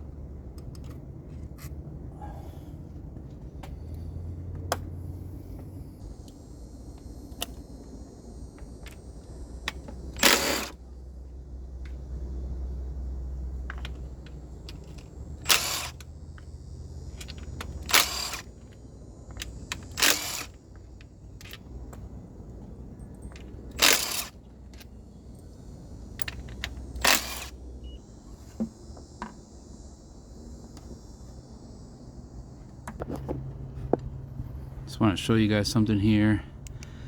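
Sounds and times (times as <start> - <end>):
steady low hum: 0.0 - 37.0
clicks and knocks of tools: 0.5 - 1.8, 13.6 - 16.5, 26.2 - 27.6
loud rasping bursts: 10.1 - 10.8, 15.4 - 16.0, 17.3 - 18.6, 19.4 - 20.6, 23.8 - 24.4, 27.0 - 27.5.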